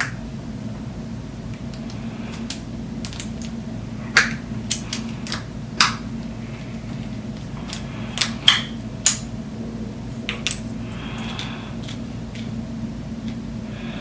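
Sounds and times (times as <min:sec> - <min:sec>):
low hum: 0:00.0 - 0:14.0
tool and parts clicking: 0:01.7 - 0:03.6, 0:04.2 - 0:06.0.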